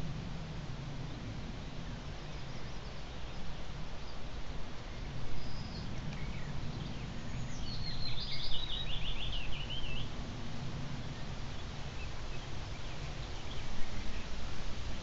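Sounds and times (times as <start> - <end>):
low background rumble: 0.0 - 15.0
small bird singing: 4.9 - 10.2, 11.0 - 14.6.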